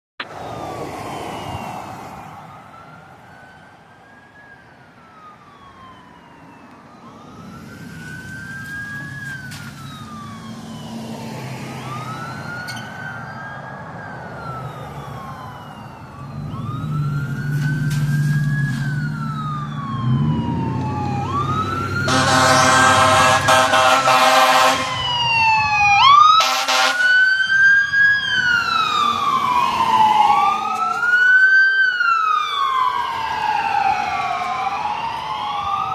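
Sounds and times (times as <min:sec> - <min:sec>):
emergency sirens wailing: 0:00.2 - 0:35.9
heavy engine drone: 0:14.6 - 0:25.1
long horn blasts: 0:22.1 - 0:25.0, 0:26.4 - 0:27.2.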